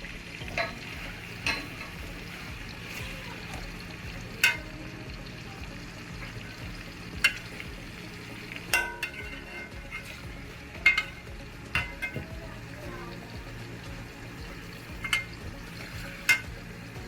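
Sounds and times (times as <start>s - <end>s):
onions sizzling in hot oil: 0.0s - 17.0s
metal spoon clinking against pot: 0.5s - 2.1s, 4.4s - 4.8s, 7.1s - 7.7s, 8.7s - 12.4s, 14.9s - 16.6s.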